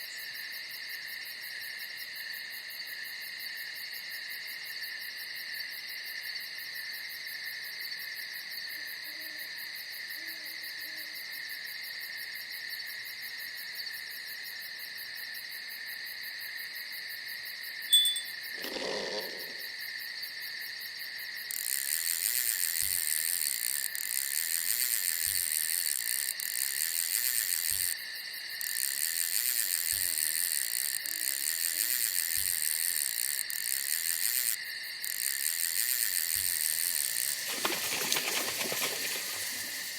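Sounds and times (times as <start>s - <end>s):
crickets chirring: 0.0s - 39.9s
higher insect chorus: 0.0s - 39.9s
owl hooting: 18.6s - 19.7s.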